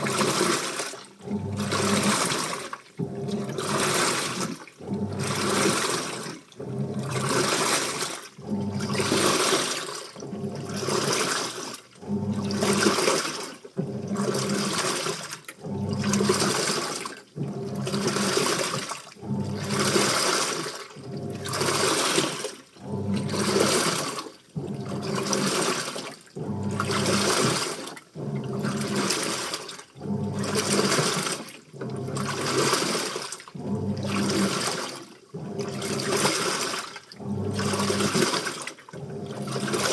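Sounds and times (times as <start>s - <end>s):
washing machine sloshing: 0.0s - 39.9s.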